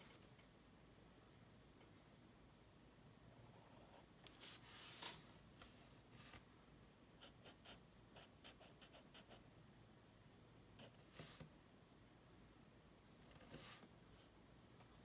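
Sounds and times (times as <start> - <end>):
drawing tool scratching on paper: 7.2 - 9.4, 10.8 - 11.4.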